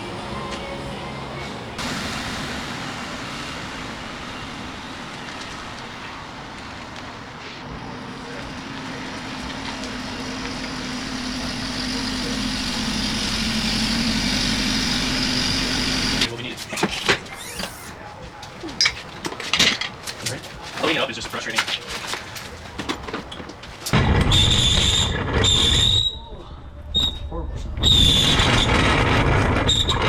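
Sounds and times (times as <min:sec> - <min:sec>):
car engine hum: 0:00.0 - 0:16.3.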